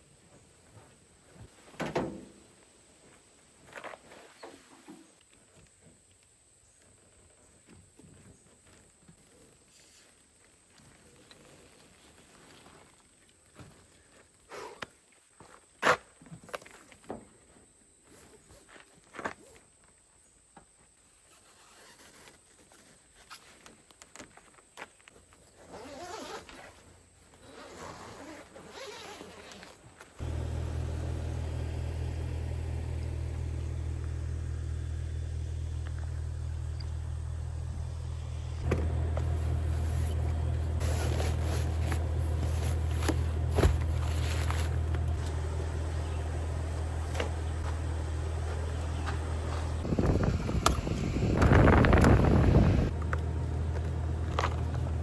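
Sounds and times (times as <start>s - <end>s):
truck engine and road rumble: 30.2s - 55.0s
small knocks and rustles: 38.6s - 45.4s.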